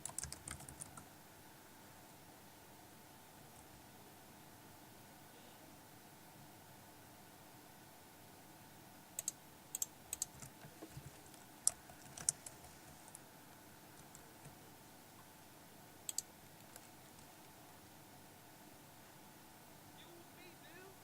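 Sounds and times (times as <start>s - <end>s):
faint steady hiss: 0.0s - 21.0s
sharp clicks and taps: 9.2s - 12.5s.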